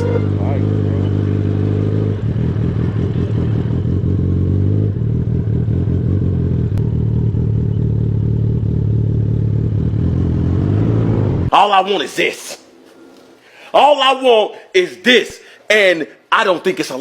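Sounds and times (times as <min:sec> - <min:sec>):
motorcycle engine running: 0:00.0 - 0:11.5.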